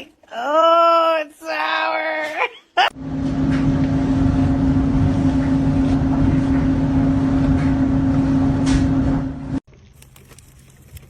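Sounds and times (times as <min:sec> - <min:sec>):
motor humming: 0:03.0 - 0:09.6.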